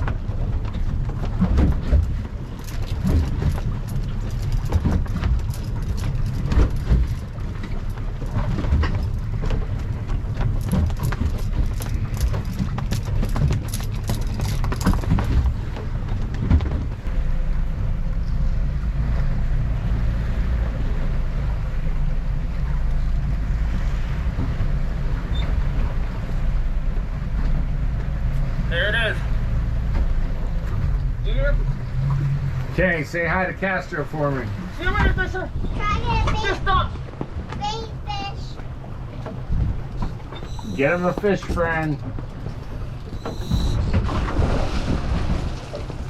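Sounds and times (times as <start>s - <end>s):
sharp knocks and clatter: 0.0s - 17.0s
boat engine droning: 0.0s - 46.0s.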